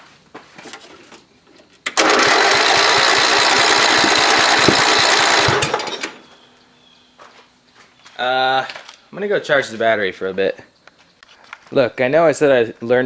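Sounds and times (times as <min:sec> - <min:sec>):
starter motor cranking engine: 0:01.8 - 0:06.4.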